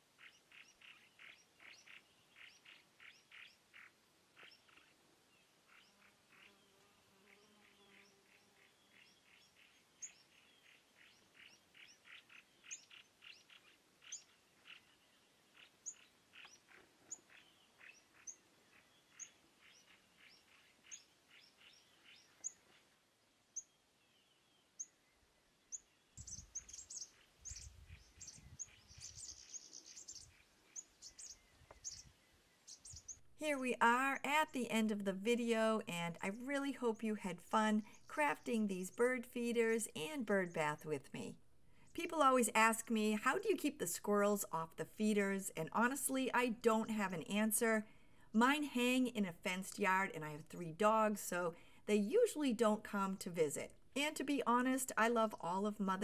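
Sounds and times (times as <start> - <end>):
songbirds chirping: 0.0 - 47.8
thin high bird calls: 25.8 - 32.1.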